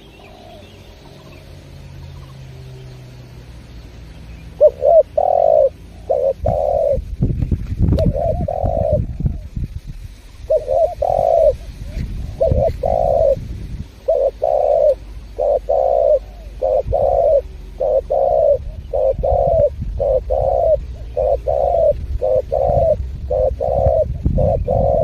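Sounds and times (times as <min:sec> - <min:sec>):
dove cooing: 0:00.0 - 0:02.7, 0:04.4 - 0:07.1, 0:07.9 - 0:09.5, 0:10.4 - 0:25.0
low rumble: 0:00.8 - 0:25.0.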